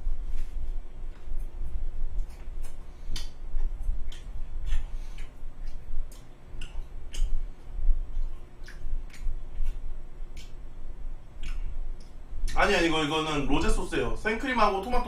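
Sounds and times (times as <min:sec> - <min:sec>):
man chewing food: 0:00.0 - 0:12.6
wet mouth smacks and clicks: 0:02.2 - 0:07.4, 0:08.1 - 0:10.6, 0:11.4 - 0:12.6.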